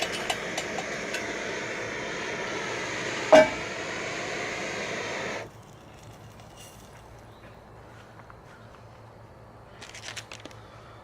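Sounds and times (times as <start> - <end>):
camp stove burner hissing: 0.0 - 5.5.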